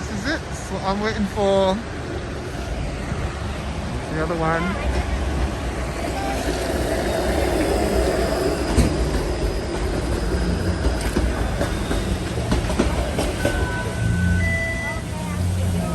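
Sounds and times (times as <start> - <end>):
streetcar rumbling on rails: 0.0 - 15.9
high wheel squeal: 5.8 - 12.5.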